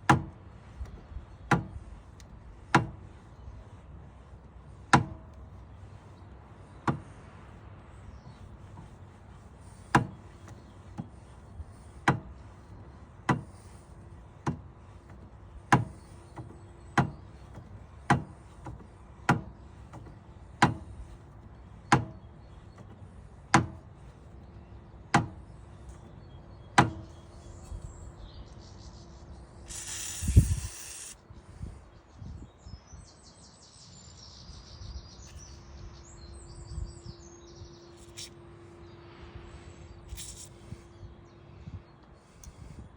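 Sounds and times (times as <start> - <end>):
rough scraping: 29.7 - 31.2.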